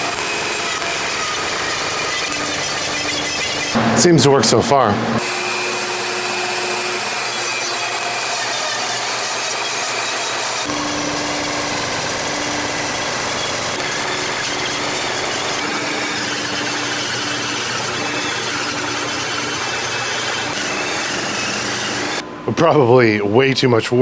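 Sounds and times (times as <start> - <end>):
table saw cutting wood: 0.0 - 23.2
faint hum: 0.1 - 5.4.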